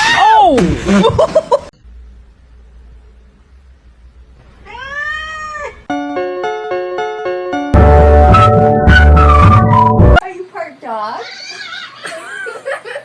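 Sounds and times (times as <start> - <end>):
cat meowing: 4.6 - 5.9.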